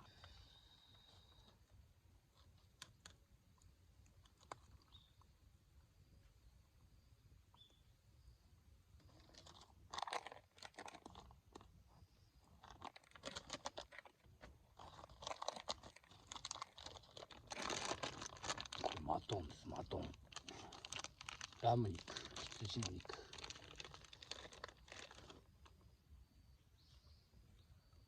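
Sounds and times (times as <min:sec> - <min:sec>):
plastic packaging crinkling: 0:09.1 - 0:11.7, 0:12.6 - 0:25.7.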